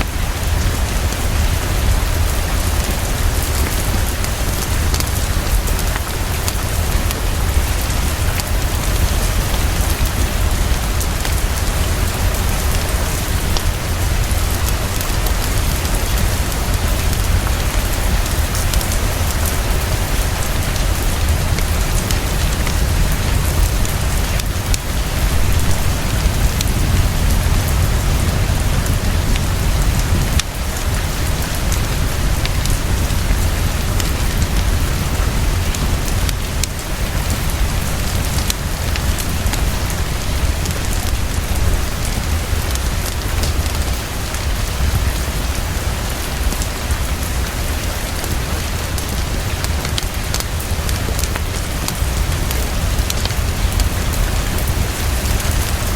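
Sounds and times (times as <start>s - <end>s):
heavy rainfall: 0.0s - 55.9s
deep low rumble: 0.2s - 43.3s.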